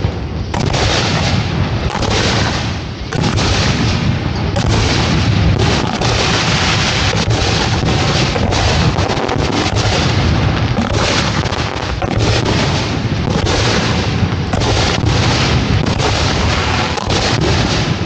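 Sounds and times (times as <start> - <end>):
fireworks launches and bursts: 0.0 - 18.0.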